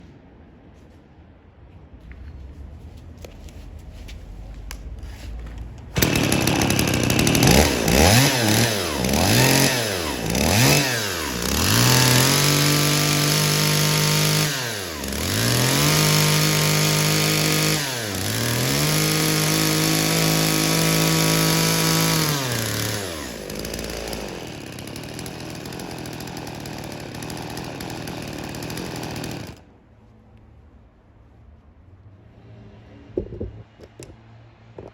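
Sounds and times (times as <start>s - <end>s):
chainsaw engine revving: 5.9s - 29.6s.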